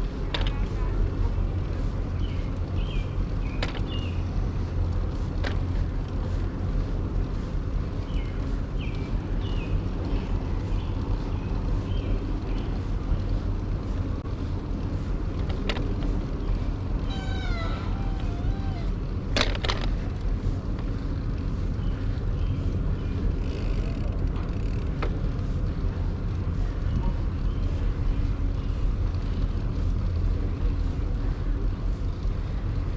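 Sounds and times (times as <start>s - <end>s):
bicycle rolling noise: 0.0s - 32.9s
wind: 0.0s - 32.9s
short falling mewing call: 17.1s - 19.0s.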